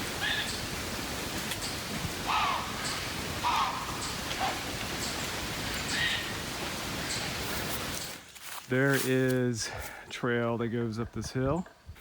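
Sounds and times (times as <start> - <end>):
steady background hiss: 0.0 - 12.0
harsh bird calls: 1.6 - 7.4.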